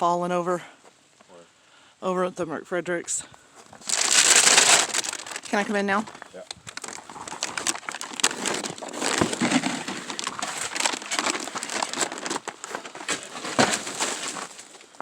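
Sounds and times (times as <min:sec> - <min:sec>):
footsteps crunching on icy ground: 0:03.4 - 0:15.0.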